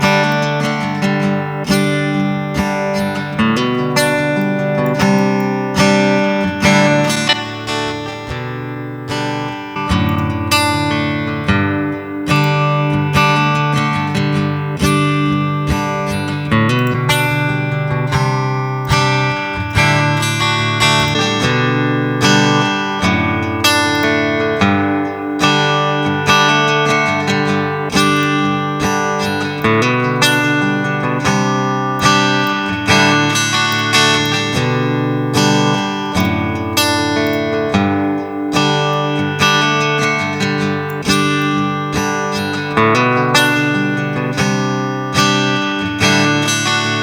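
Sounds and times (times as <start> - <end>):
acoustic guitar strumming chords: 0.0 - 47.0.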